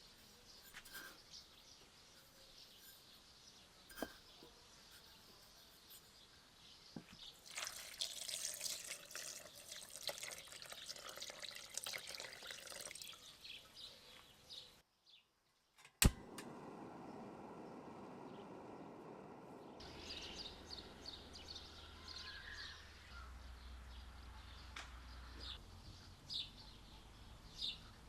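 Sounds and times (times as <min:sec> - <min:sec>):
water drips: 0:07.4 - 0:13.6
sharp click: 0:15.9 - 0:16.5.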